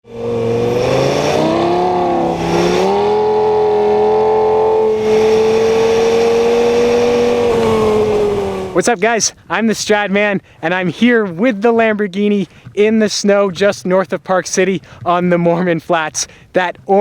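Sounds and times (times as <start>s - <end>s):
car engine accelerating: 0.0s - 8.8s.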